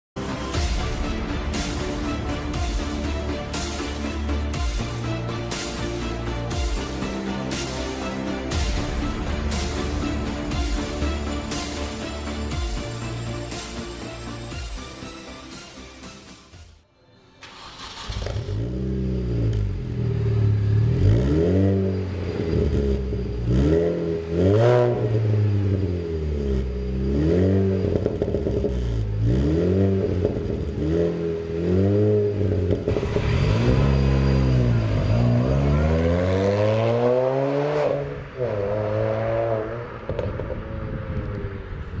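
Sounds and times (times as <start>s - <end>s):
car engine revving: 17.4s - 42.0s.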